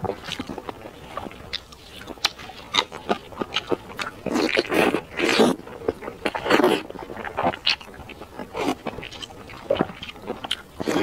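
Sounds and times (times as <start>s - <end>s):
wet chewing and lip smacks: 0.0s - 11.0s.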